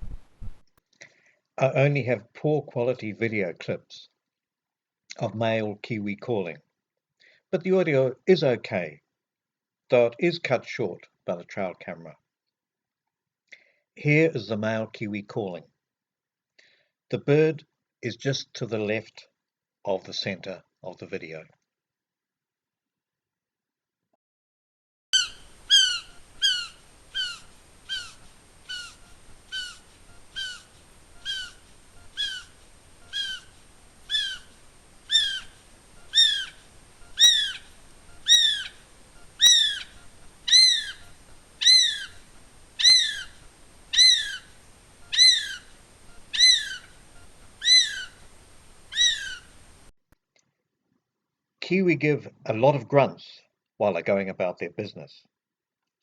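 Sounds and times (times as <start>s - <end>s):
kiwi shrill whistled call: 25.2s - 48.2s, 48.9s - 49.6s.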